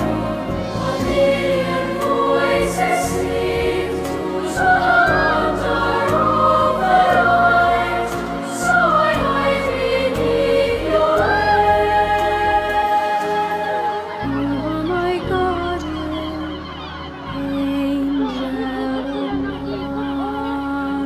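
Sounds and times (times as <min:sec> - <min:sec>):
instrumental accompaniment: 0:00.0 - 0:14.8
choir singing: 0:00.0 - 0:21.0.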